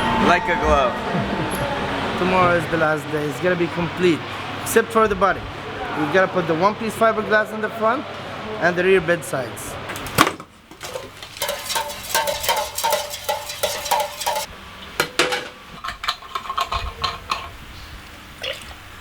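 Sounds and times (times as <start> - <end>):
scattered knocks: 10.7 - 14.5.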